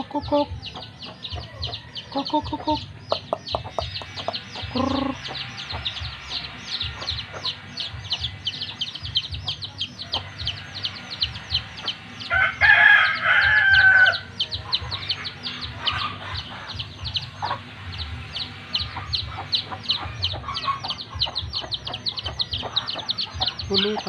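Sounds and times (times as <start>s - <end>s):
rooster crowing: 12.2s - 14.3s.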